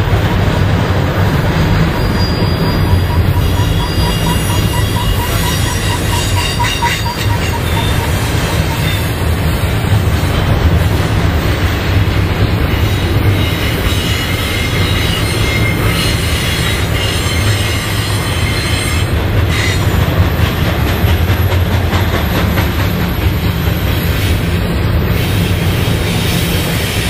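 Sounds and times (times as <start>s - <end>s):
train wheels rumbling on rails: 0.0s - 27.0s
faint high wheel squeal: 1.9s - 9.4s, 13.3s - 19.8s.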